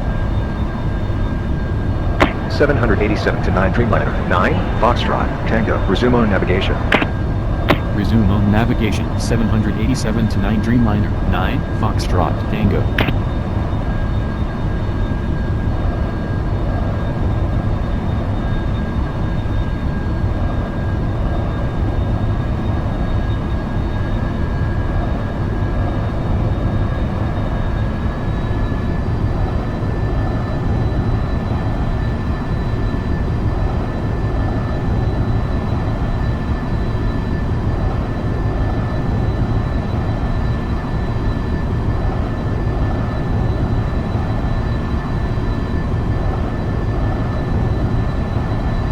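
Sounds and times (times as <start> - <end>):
jet engines rumbling and whining: 0.0 - 20.3.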